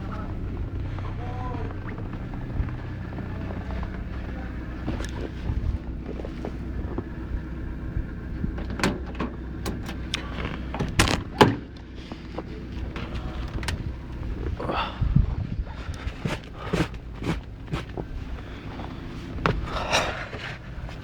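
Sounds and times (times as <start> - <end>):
diesel engine idling: 0.0 - 21.0
sharp clicks and knocks: 8.5 - 13.9.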